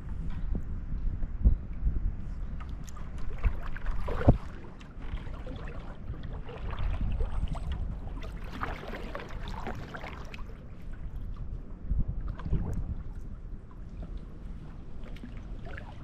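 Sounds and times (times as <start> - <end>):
paddle strokes splashing: 2.6 - 11.3, 13.8 - 16.0.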